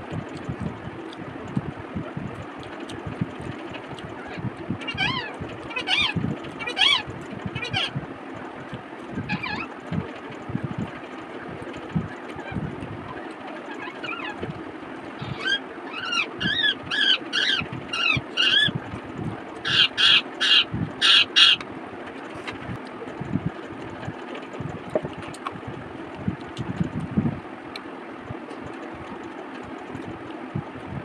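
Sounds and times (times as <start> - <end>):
bird calling: 4.2 - 8.0, 9.2 - 9.8, 12.1 - 14.5, 15.2 - 18.8, 19.6 - 21.6.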